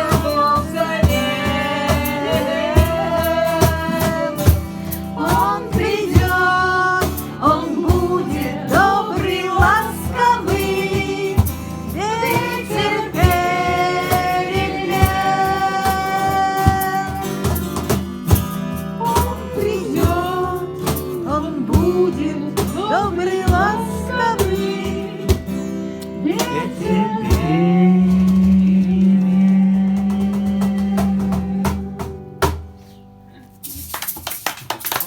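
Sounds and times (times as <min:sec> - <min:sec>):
high voice singing: 0:00.0 - 0:17.5, 0:19.0 - 0:25.5, 0:26.1 - 0:32.1
sharp percussive beat: 0:00.0 - 0:21.2
instrumental accompaniment: 0:00.0 - 0:34.8.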